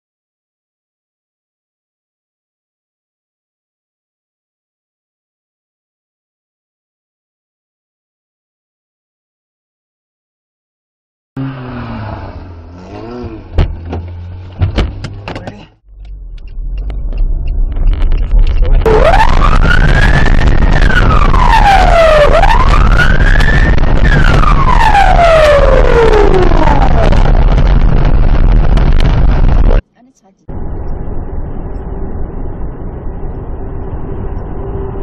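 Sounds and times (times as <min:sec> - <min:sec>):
sharp knocks: 0:13.5 - 0:18.6
emergency vehicle siren wailing: 0:17.1 - 0:28.0, 0:30.5 - 0:35.0.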